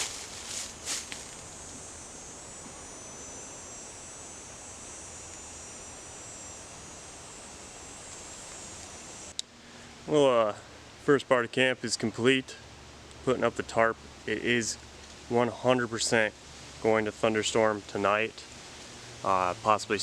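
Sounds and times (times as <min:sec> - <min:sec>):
insects trilling: 0:00.0 - 0:09.4
background hiss: 0:00.0 - 0:20.0.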